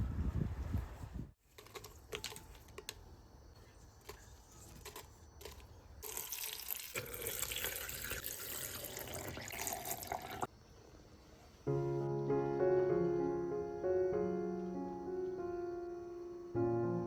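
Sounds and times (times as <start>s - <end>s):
tap water running: 5.4s - 10.5s.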